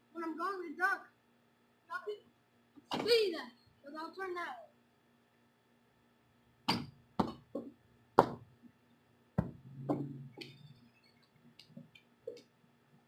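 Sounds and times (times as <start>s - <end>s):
sharp knocks and thumps: 6.7s - 8.4s, 9.4s - 10.6s.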